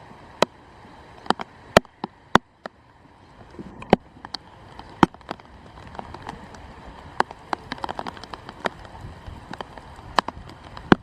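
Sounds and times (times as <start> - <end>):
faint rain hiss: 0.0 - 11.0
raindrops tapping hard surface: 3.4 - 11.0.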